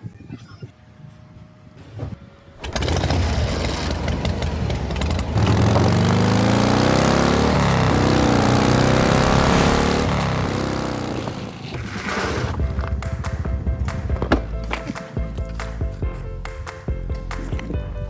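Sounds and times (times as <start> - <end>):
small engine starting and revving: 2.6 - 13.8.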